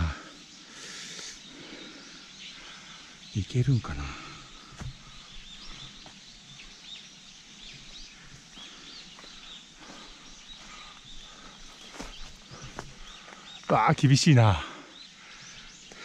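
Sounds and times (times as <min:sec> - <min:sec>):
small birds chirping: 0:00.0 - 0:16.0
rustles and steps in undergrowth: 0:07.5 - 0:13.7.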